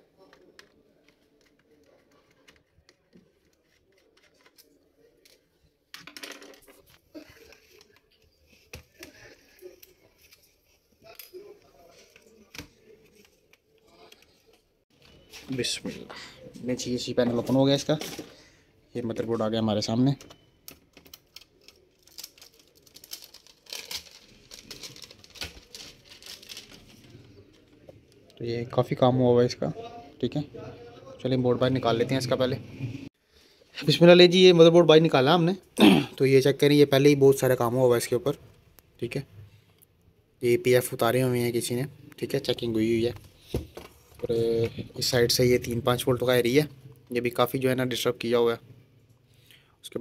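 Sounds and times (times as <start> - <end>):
laptop parts clicking and rattling: 20.1 - 27.8.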